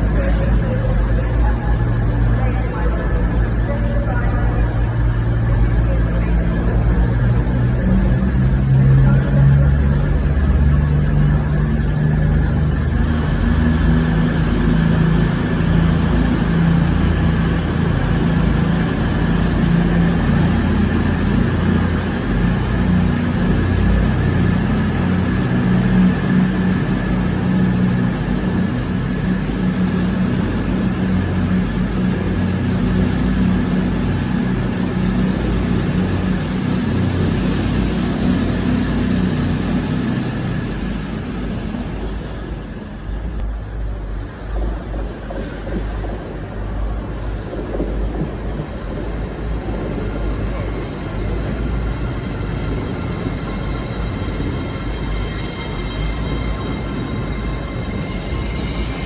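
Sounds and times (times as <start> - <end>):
diesel train engine humming: 0.0 - 59.0
faint high whine: 53.2 - 59.0.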